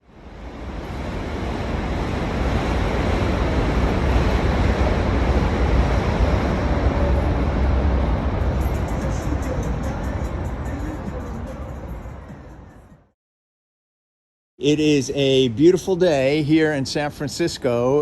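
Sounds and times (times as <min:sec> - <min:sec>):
outdoor rush with low rumble: 0:00.0 - 0:13.1.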